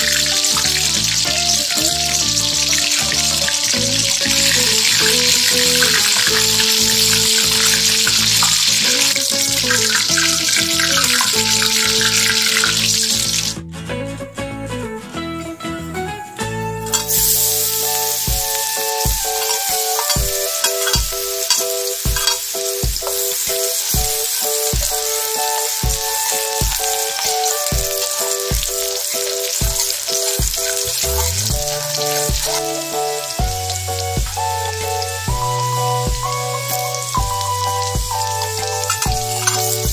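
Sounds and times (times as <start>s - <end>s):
garlic sizzling in oil: 0.0s - 13.6s, 16.9s - 39.9s
background music with steady beat: 13.6s - 39.9s
metal spatula stirring in wok: 16.9s - 18.6s, 19.3s - 24.9s, 38.4s - 39.8s.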